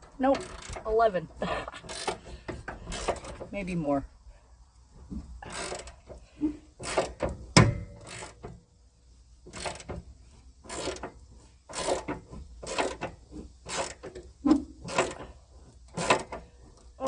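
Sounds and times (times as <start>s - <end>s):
hand ratchet clicking: 0.2s - 1.0s, 1.8s - 3.5s, 5.4s - 6.2s, 6.8s - 8.6s, 9.5s - 17.0s.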